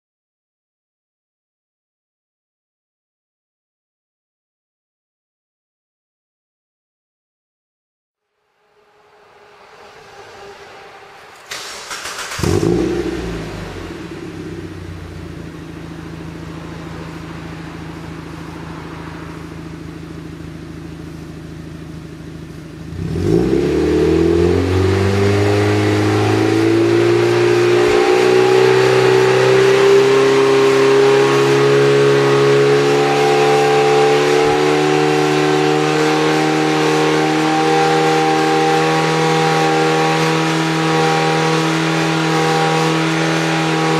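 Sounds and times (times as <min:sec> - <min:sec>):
car engine starting and revving: 0:08.6 - 0:43.9.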